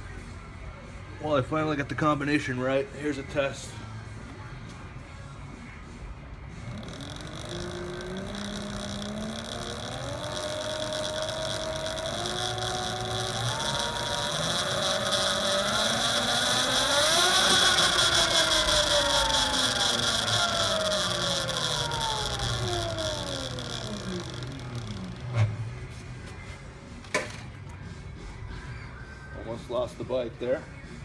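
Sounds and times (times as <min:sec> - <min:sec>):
electric motor whining: 0:06.2 - 0:26.4.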